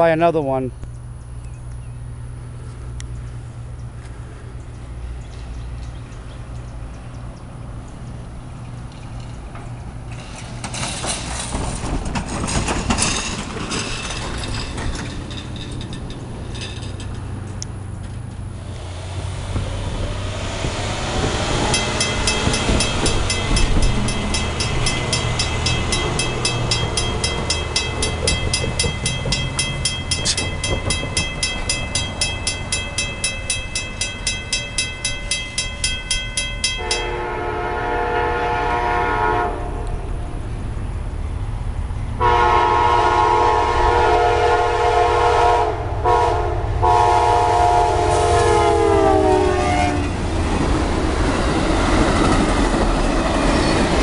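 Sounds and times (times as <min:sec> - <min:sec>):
train rumbling: 0:00.0 - 0:54.0
railroad crossing bell ringing: 0:20.6 - 0:38.0
train horn chord: 0:36.7 - 0:40.1, 0:42.2 - 0:50.2.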